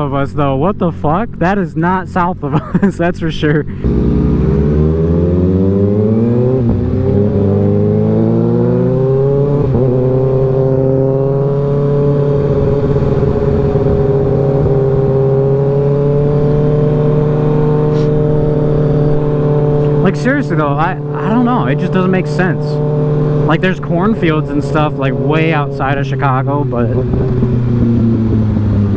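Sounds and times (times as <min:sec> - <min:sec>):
motorcycle engine accelerating: 0:03.6 - 0:28.9.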